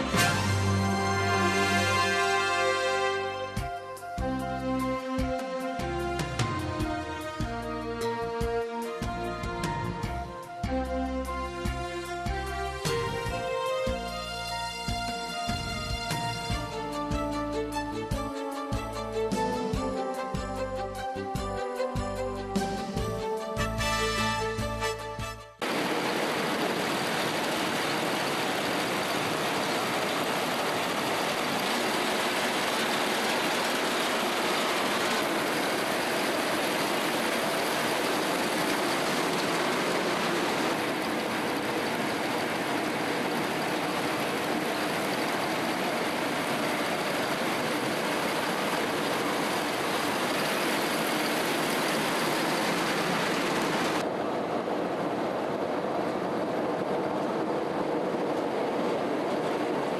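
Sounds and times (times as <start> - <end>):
combine harvester running: 0.0 - 8.2, 25.6 - 59.9.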